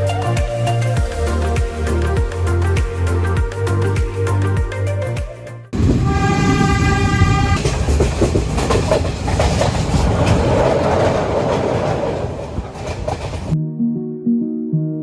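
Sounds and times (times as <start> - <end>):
train horn: 5.8 - 7.8
train rumbling and clacking: 5.8 - 13.6.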